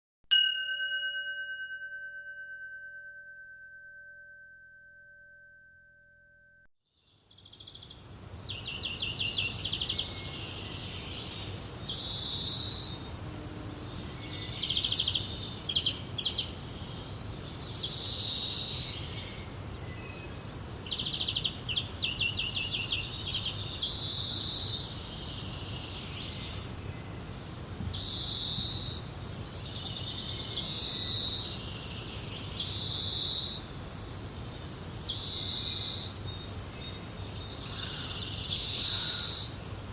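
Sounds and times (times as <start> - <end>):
birds calling and trilling: 7.1 - 39.6.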